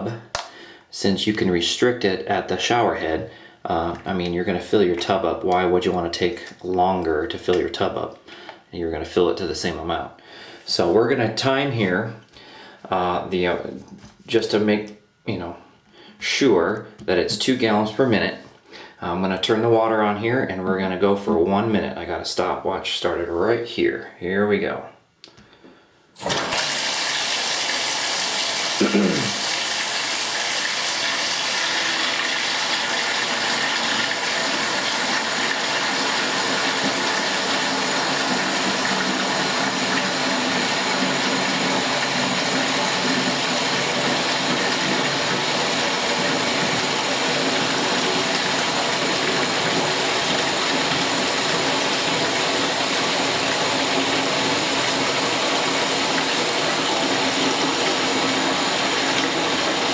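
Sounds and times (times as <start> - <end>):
tap water gushing into bucket: 26.2 - 59.9.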